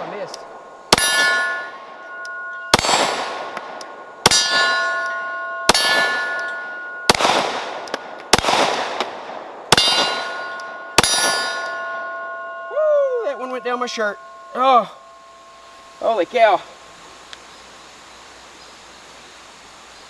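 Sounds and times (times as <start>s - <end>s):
pistol shots: 0.9s - 1.9s, 2.7s - 5.1s, 5.7s - 12.0s
steel target clanging: 0.9s - 8.4s, 9.7s - 16.6s.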